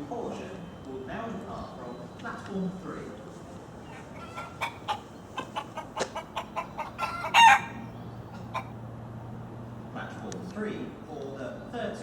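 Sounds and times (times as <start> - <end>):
bird clucking: 3.8 - 8.8
loud bird call: 3.8 - 8.8.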